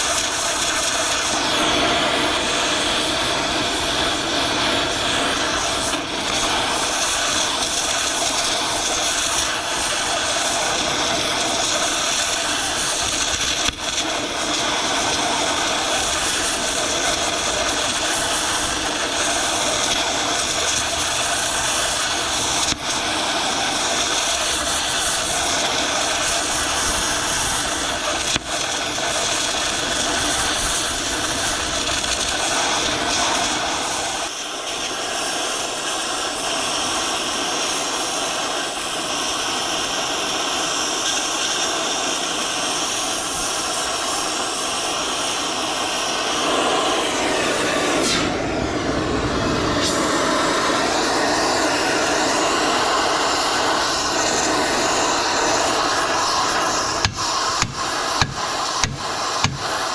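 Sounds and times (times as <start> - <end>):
metal-cutting tool running: 54.6 - 59.9.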